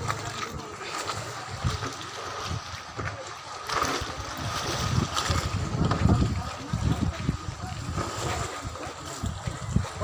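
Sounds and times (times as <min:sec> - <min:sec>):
wind buffeting microphone: 0:04.0 - 0:10.0.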